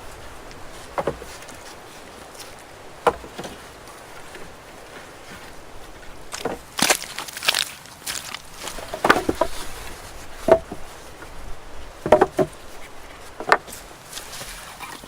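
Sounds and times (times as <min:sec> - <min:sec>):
wood being chopped: 0:00.9 - 0:01.6, 0:03.0 - 0:03.6, 0:06.3 - 0:09.8, 0:10.5 - 0:10.8, 0:12.0 - 0:12.6.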